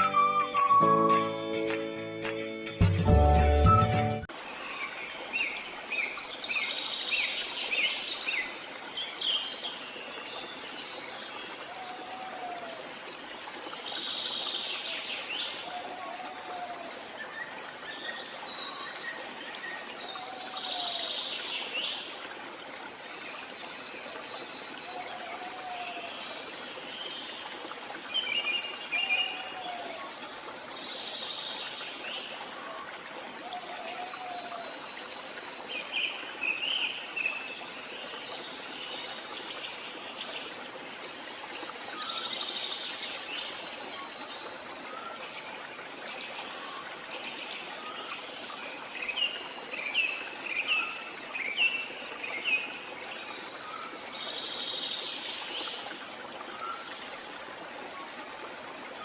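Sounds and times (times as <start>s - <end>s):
stream rushing: 0.0s - 59.0s.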